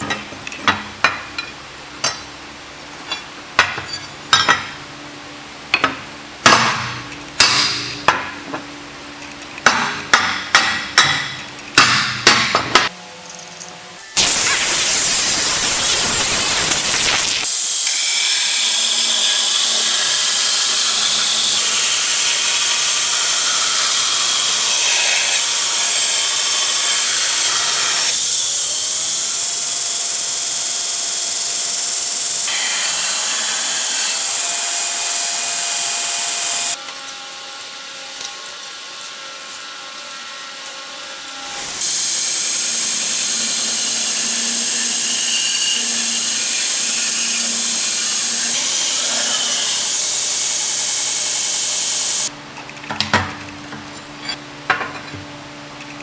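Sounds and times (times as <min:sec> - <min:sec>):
power grinder grinding steel: 0:12.9 - 0:52.3.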